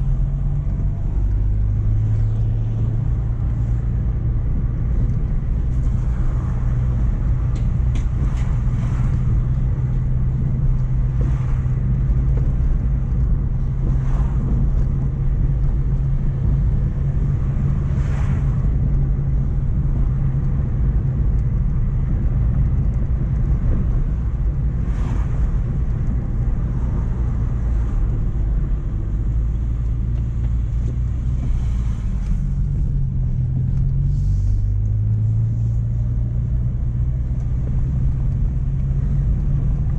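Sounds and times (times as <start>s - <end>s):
car engine running: 0.0s - 39.9s
road and tyre noise: 0.0s - 39.9s.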